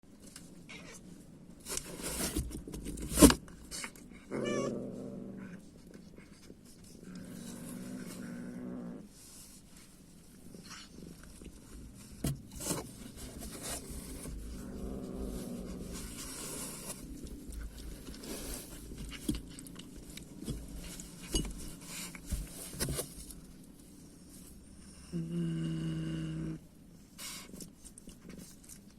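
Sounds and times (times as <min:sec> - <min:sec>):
rustling: 0:00.1 - 0:24.9, 0:26.9 - 0:28.9
cats crunching food: 0:05.3 - 0:08.6, 0:10.2 - 0:24.7, 0:27.2 - 0:28.9.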